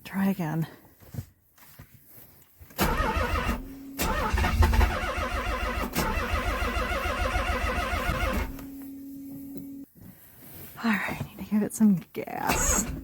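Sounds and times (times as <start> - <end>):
car starter cranking engine: 2.8 - 8.6, 12.5 - 13.0.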